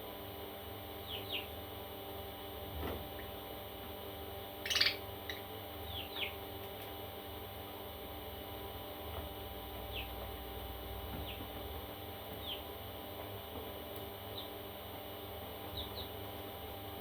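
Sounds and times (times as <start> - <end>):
harsh parrot squawk: 4.6 - 5.0
parrot chicks falling chirps: 4.6 - 6.4.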